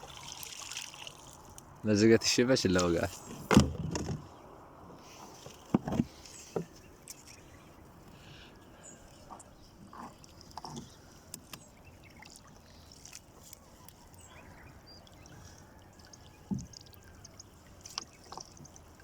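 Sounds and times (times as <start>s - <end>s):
water trickling and dripping: 0.0s - 1.9s, 9.0s - 19.0s
light knocks on boat: 3.3s - 4.3s, 5.7s - 6.7s.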